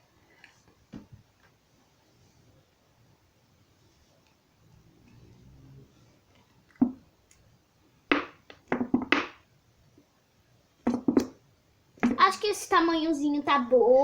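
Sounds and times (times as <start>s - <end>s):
plastic containers knocking: 8.1s - 9.4s, 10.8s - 11.4s, 12.0s - 12.3s.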